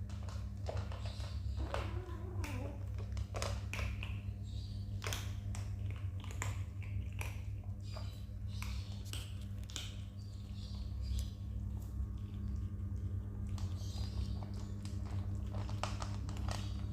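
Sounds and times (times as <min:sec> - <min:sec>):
kittens scrambling and eating: 0:00.0 - 0:16.9
steady low hum: 0:00.0 - 0:16.9
kittens mewing: 0:01.6 - 0:03.0.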